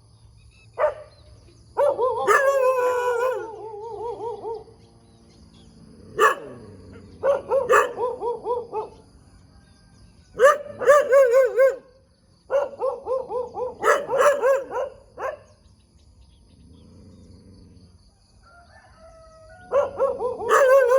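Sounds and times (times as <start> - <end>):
dogs barking and yelping: 0.8 - 5.0, 5.6 - 9.1, 10.4 - 11.9, 12.5 - 15.6, 19.6 - 20.9.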